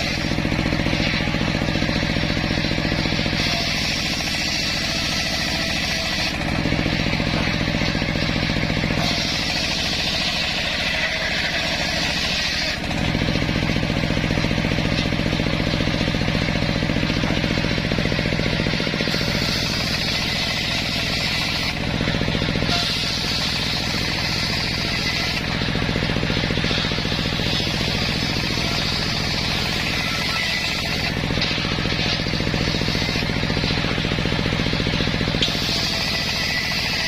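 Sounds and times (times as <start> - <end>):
circular sawmill running: 0.0 - 37.0
saw blade cutting log: 0.0 - 37.0.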